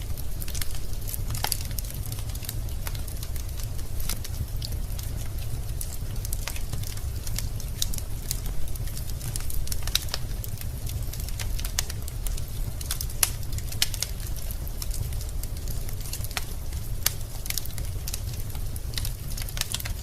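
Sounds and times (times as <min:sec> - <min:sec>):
fire flames rumbling: 0:00.0 - 0:20.0
logs popping and crackling: 0:00.0 - 0:20.0.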